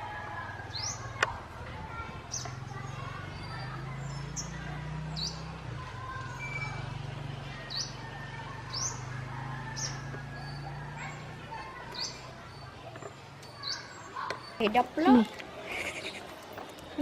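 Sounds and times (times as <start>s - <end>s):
bird chirping: 7.6s - 17.0s.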